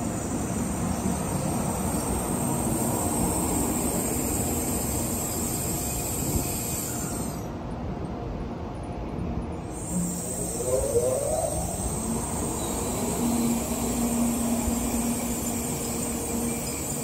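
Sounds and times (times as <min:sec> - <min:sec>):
train rolling noise: 0:00.0 - 0:17.0
electric train drive whine: 0:09.5 - 0:17.0.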